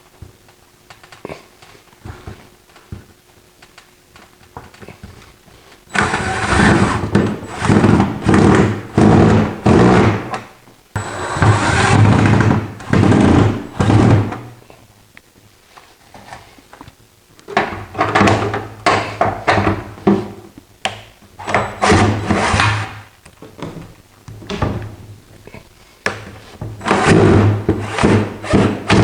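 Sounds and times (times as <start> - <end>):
power drill bursts: 5.9 - 10.3, 11.0 - 14.3, 21.4 - 22.8, 26.8 - 29.0.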